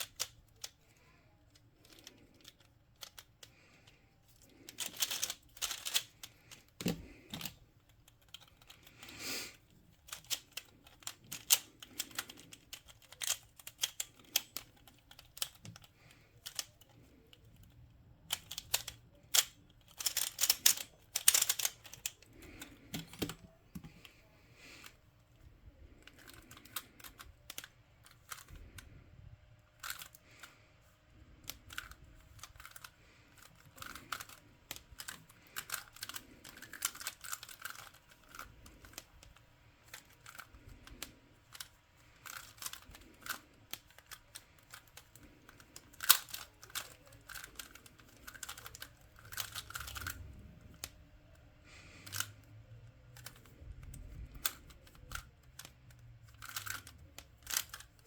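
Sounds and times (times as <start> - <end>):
puzzle cube clicking: 0.0 - 0.8, 1.5 - 24.2, 29.8 - 30.6, 31.2 - 58.0.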